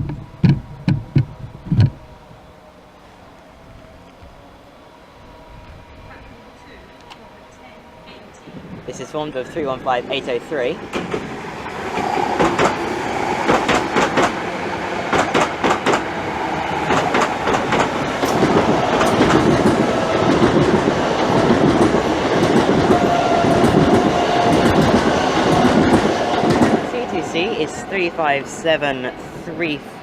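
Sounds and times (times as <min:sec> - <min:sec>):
train wheels clattering over rail joints: 0:10.8 - 0:26.9.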